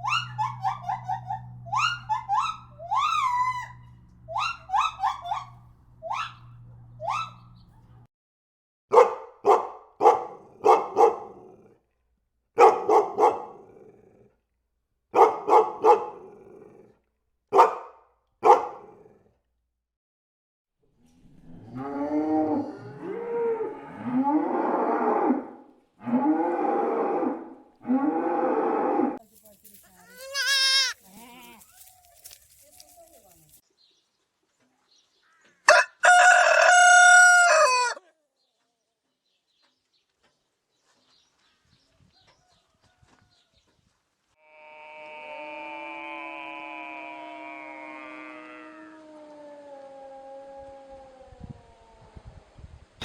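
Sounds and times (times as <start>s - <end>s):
animal's high rising calls: 0.0s - 7.5s, 44.4s - 52.6s
cow mooing: 21.4s - 29.2s, 44.4s - 50.7s.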